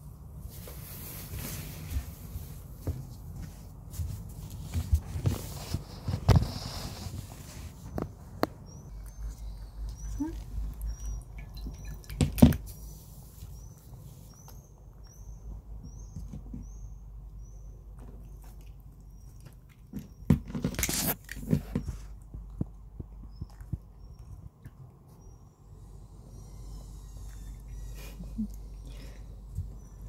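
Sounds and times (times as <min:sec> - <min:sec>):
songbird chirping: 0:07.5 - 0:20.3, 0:23.2 - 0:30.0.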